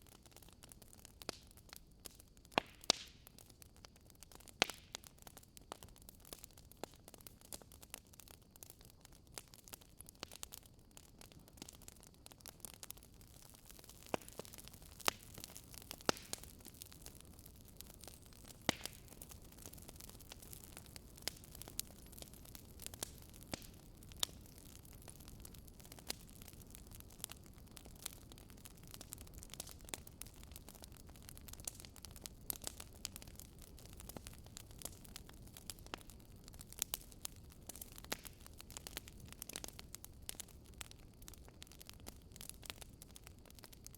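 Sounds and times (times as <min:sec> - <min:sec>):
wood fire crackling: 0:00.0 - 0:43.9
sharp fire pops: 0:02.5 - 0:03.2, 0:12.8 - 0:41.8.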